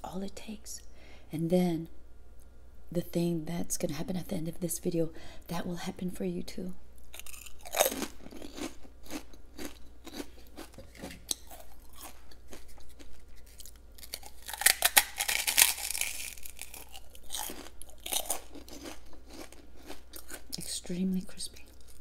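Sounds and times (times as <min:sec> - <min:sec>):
prawn crackers crunching: 0:07.1 - 0:20.8.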